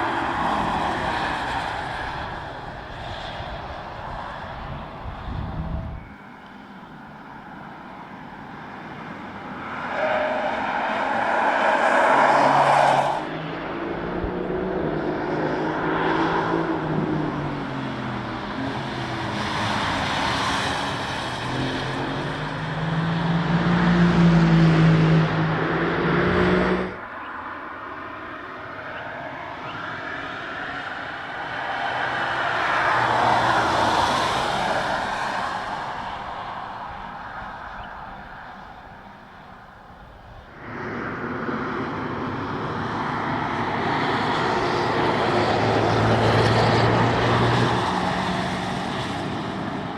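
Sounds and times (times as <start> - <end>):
car driving past at speed: 8.6 - 27.4, 40.5 - 49.9.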